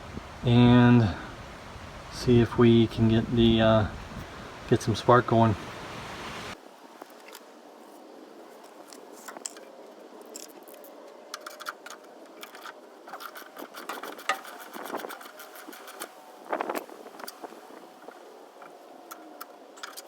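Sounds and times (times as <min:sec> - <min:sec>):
metallic clinks and rattles: 0:09.2 - 0:16.1
metal clatter: 0:11.4 - 0:16.1.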